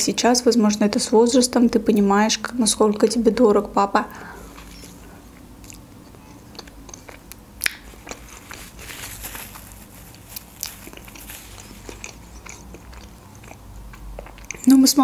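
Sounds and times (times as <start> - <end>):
mouth chewing soft pancake: 4.5 - 14.8
wet mouth clicks: 5.6 - 5.8, 6.5 - 8.3
paper napkin rustling: 7.8 - 12.4.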